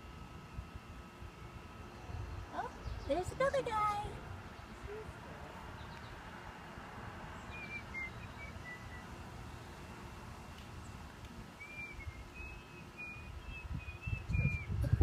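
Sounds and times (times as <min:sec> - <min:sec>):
thin whistled bird notes: 0:07.4 - 0:09.1, 0:11.6 - 0:14.8.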